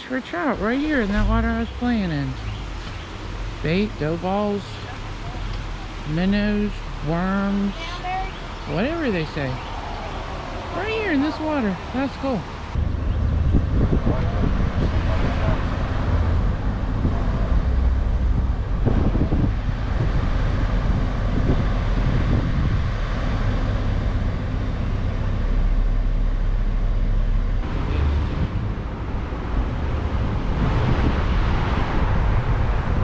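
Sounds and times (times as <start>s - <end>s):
steady rushing noise: 0.1s - 33.0s
wind buffeting microphone: 12.5s - 33.0s.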